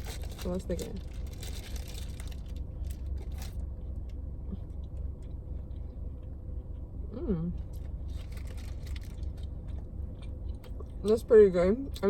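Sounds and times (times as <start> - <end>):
rustling and handling sounds: 0.0 - 3.7
car cabin engine hum: 0.0 - 12.0.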